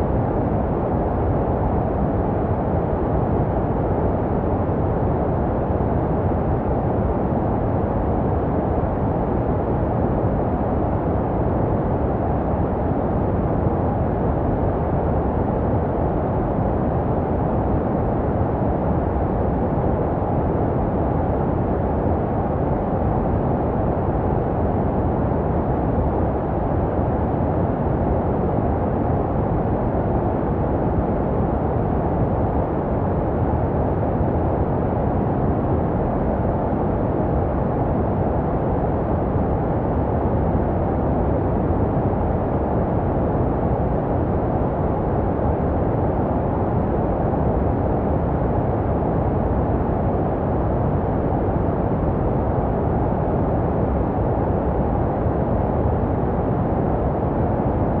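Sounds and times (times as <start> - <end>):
muffled white noise hiss: 0.0 - 58.0.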